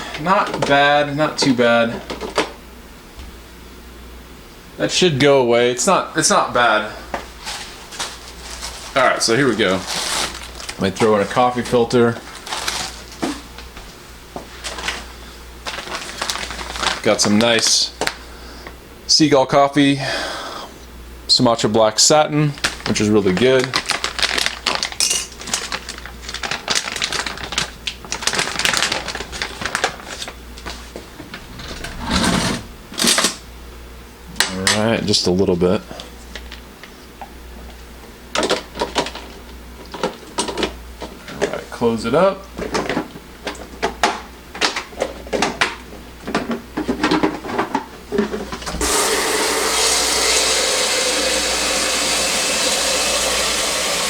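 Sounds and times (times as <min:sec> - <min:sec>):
coffee bag crackling and rustling: 0:07.4 - 0:13.5, 0:14.6 - 0:17.7, 0:22.6 - 0:31.9
water pouring: 0:48.8 - 0:54.0.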